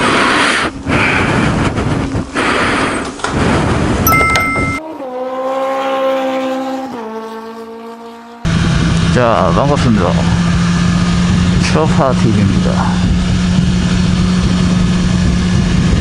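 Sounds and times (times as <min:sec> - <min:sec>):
steady pitched tone: 0:04.1 - 0:04.9
motorcycle engine running loud: 0:05.0 - 0:16.0.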